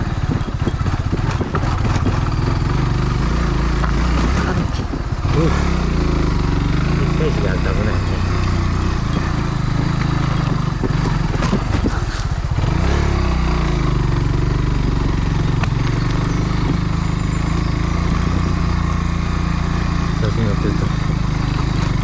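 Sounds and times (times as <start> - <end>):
wind noise: 0.0 - 5.3
motorcycle engine running: 0.0 - 22.0.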